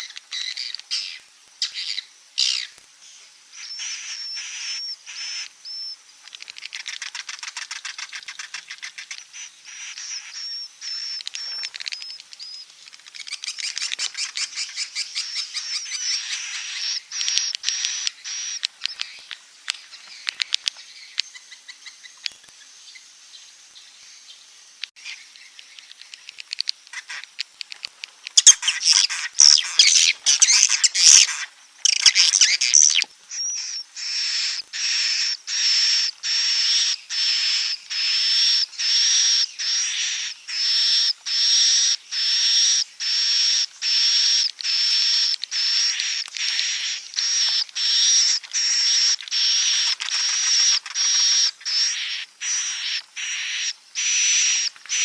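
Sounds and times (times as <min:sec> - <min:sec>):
swiftlets chirping and twittering: 0:03.5 - 0:23.0, 0:24.9 - 0:55.0
buzzy high-pitched chirrups: 0:28.4 - 0:55.0.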